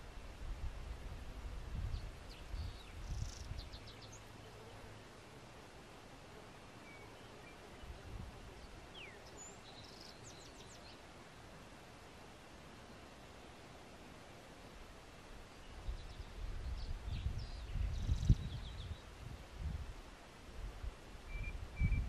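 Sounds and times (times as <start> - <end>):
outdoor background hiss: 0.0 - 22.0
birds chirping: 6.7 - 11.1.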